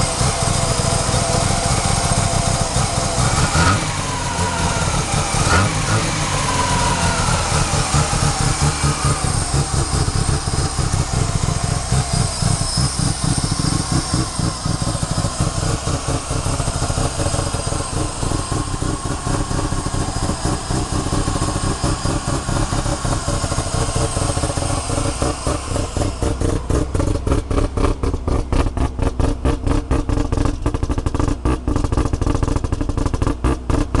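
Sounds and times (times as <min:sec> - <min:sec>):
rotary engine lumpy idle: 0:00.0 - 0:34.0.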